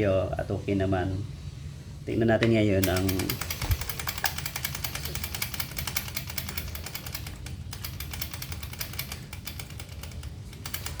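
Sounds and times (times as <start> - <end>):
small engine ticking: 2.8 - 11.0.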